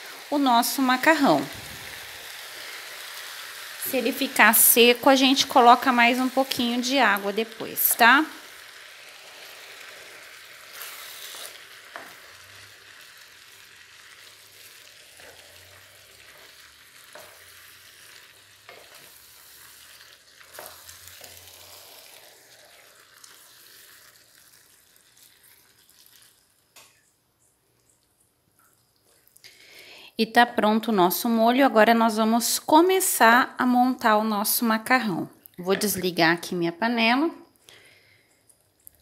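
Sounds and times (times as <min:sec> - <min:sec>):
sauce sizzling in skillet: 0:00.0 - 0:27.0
wooden spoon scraping pan: 0:15.1 - 0:24.0.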